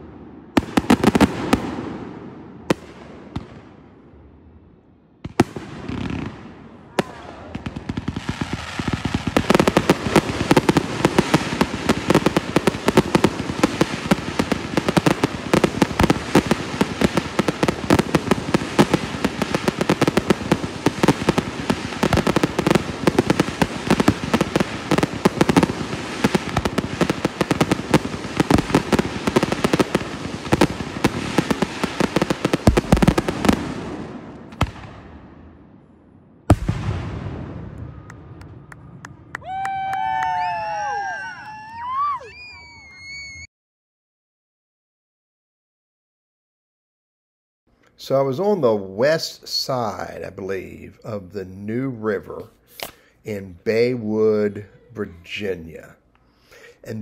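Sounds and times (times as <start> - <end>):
fireworks bangs and crackle: 0.0 - 4.6, 5.2 - 43.2.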